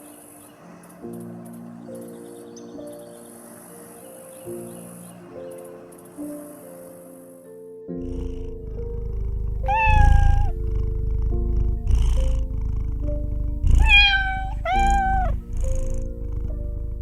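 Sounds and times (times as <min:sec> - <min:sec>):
cat purring: 0:08.0 - 0:17.0
cat meowing: 0:09.6 - 0:10.6, 0:13.7 - 0:15.8.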